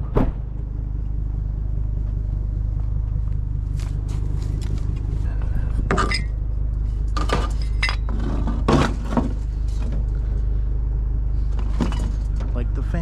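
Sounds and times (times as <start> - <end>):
steady low hum: 0.0 - 13.0
scrap metal clanking: 5.3 - 10.3, 11.4 - 12.6.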